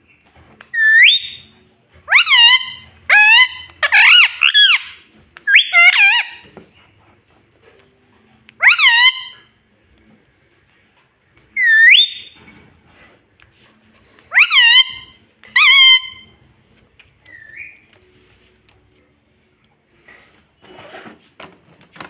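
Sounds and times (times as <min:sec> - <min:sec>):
parrot whistled calls: 0:00.7 - 0:01.5, 0:02.1 - 0:06.5, 0:08.6 - 0:09.5, 0:11.6 - 0:12.4, 0:14.3 - 0:16.3, 0:17.3 - 0:17.9.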